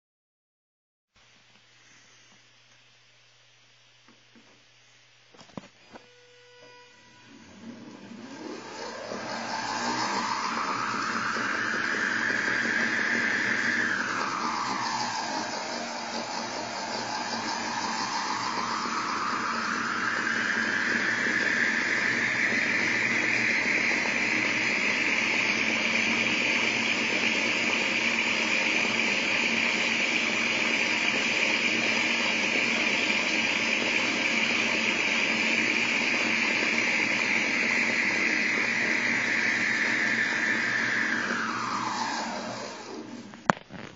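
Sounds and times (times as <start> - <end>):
small motor whine: 5.9 - 43.6
wheel rushing noise: 7.5 - 30.7, 36.0 - 43.5.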